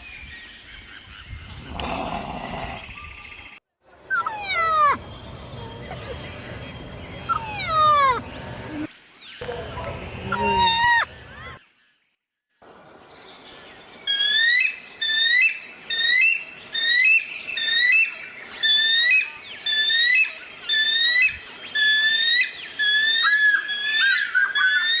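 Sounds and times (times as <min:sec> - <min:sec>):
faint bird calls: 0:04.0 - 0:11.6.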